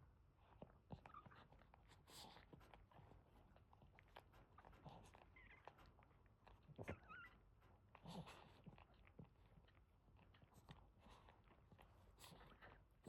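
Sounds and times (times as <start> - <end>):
puppies squeaking: 6.9 - 7.4.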